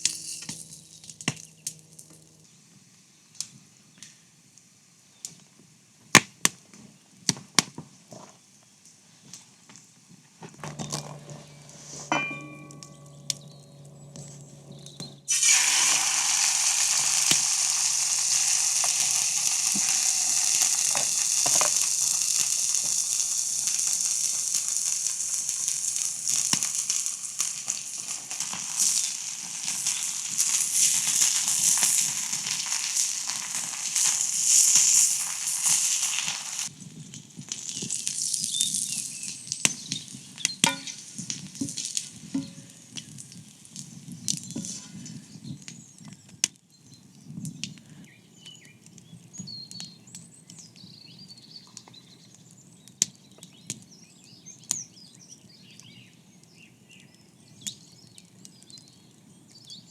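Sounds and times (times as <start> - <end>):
low hum: 0.0 - 2.7, 10.6 - 15.3
brief ringing tones: 10.7 - 15.4
food sizzling in a pan: 10.8 - 14.7, 15.3 - 36.7, 37.5 - 40.1.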